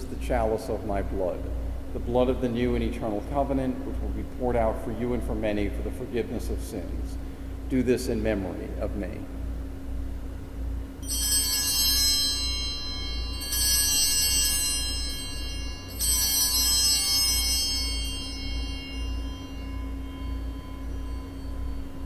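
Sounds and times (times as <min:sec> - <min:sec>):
low electrical hum: 0:00.0 - 0:22.0
altar bells ringing: 0:11.0 - 0:22.0.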